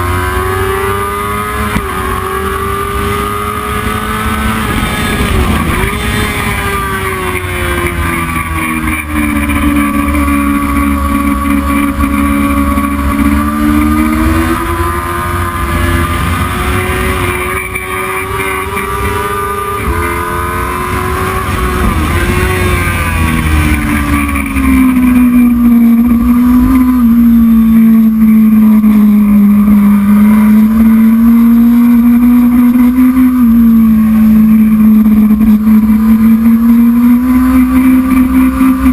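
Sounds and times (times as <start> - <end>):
racing motorcycle engine revving: 0.0 - 38.9
low wind rumble: 1.8 - 17.6.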